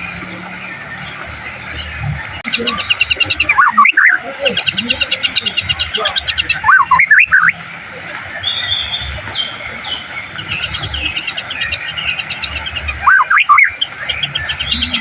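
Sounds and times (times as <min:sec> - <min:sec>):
bird chattering trills: 0:00.0 - 0:15.0
bird whistled phrases: 0:02.5 - 0:07.6, 0:08.3 - 0:15.0.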